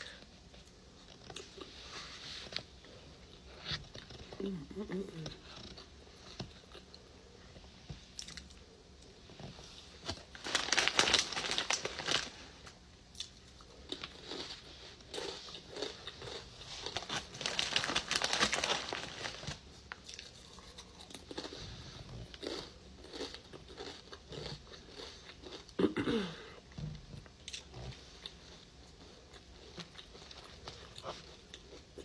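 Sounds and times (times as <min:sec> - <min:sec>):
falling hum of voice: 0:04.3 - 0:05.7
crunchy chewing and biting: 0:13.1 - 0:19.3, 0:20.0 - 0:25.8.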